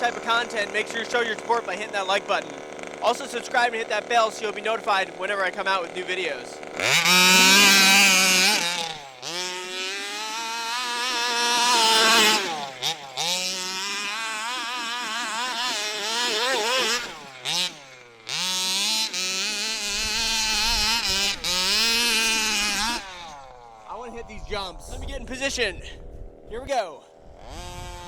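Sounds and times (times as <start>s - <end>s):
two-stroke rc buggy engine revving: 0.0s - 24.8s, 25.5s - 28.0s.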